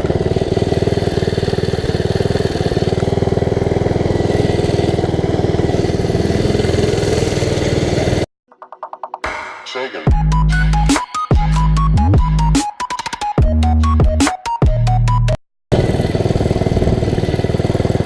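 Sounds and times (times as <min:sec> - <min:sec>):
minibike engine running: 0:00.0 - 0:08.3, 0:15.7 - 0:18.0.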